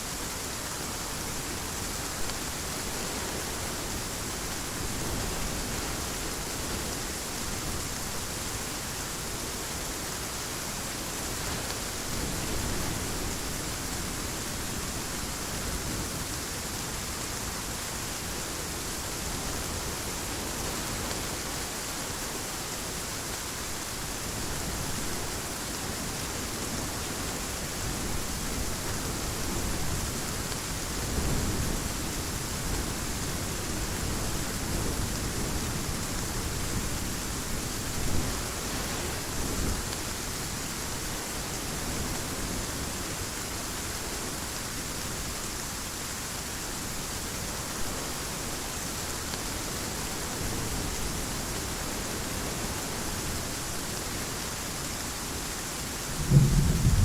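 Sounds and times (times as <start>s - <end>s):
heavy rain falling: 0.0s - 57.0s
rolls of thunder: 56.2s - 57.0s.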